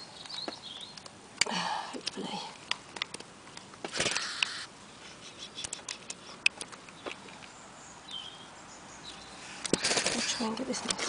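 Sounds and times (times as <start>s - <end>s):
small clicks and ticks: 0.2s - 4.5s.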